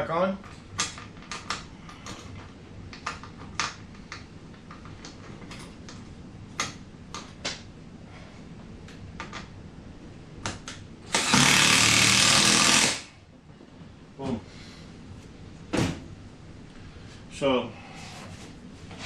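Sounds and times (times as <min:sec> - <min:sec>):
loud power tool driving bolt: 0:11.1 - 0:13.1.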